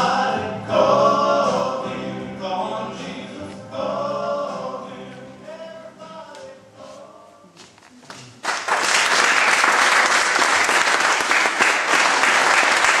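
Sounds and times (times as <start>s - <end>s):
gospel singing: 0.0s - 7.6s
audience applause: 8.4s - 13.0s.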